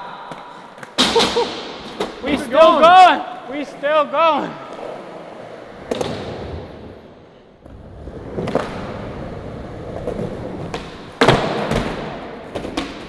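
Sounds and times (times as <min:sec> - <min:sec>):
skateboard landing thud: 0:00.8 - 0:02.2, 0:05.8 - 0:06.7, 0:10.0 - 0:13.0
skateboard wheels rolling on pavement: 0:01.8 - 0:13.0.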